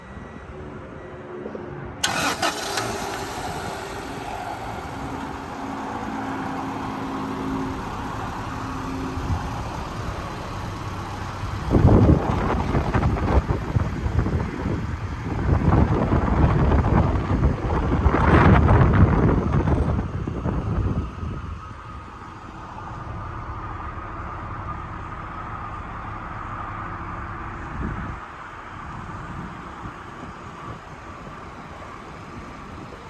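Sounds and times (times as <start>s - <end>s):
car engine starting and idling: 2.0s - 33.0s
wind rumble on microphone: 9.2s - 22.3s, 27.2s - 33.0s.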